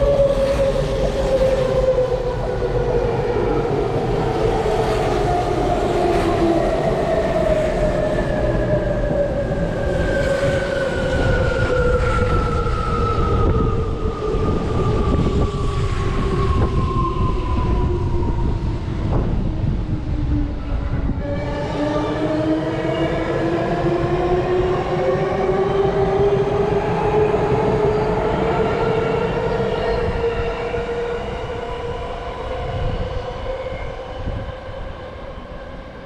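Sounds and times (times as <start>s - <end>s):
wheels rumbling and clicking on rails: 0.0s - 36.0s.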